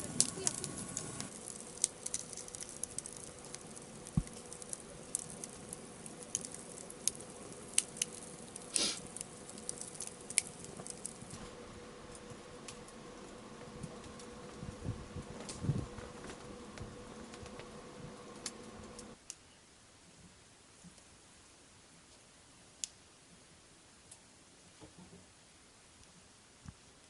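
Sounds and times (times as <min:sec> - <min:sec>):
campfire crackling and popping: 0:00.0 - 0:19.4
faint hiss: 0:00.0 - 0:27.0.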